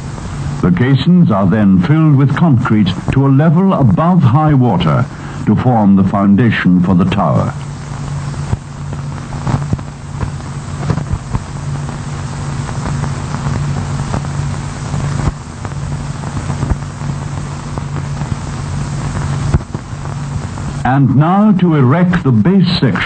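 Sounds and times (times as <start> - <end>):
low hum and hiss: 0.0 - 23.0
film crackles and clicks: 6.9 - 20.8.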